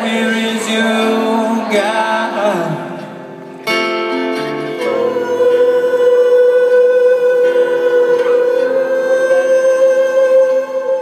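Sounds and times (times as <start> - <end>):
person singing: 0.0 - 3.3, 4.4 - 11.0.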